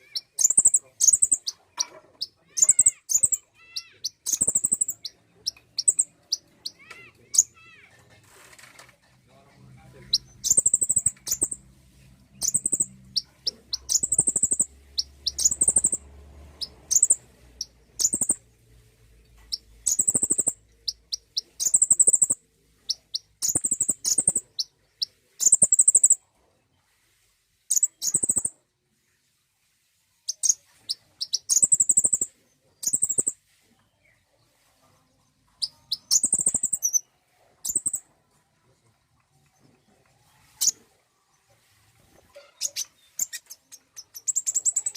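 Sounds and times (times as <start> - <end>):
bird high thin chirps: 0.0 - 7.9, 10.0 - 11.7, 12.3 - 16.0, 16.6 - 18.5, 19.4 - 26.2, 27.7 - 28.6, 30.3 - 33.5, 35.5 - 38.1, 40.4 - 40.9, 42.3 - 44.9.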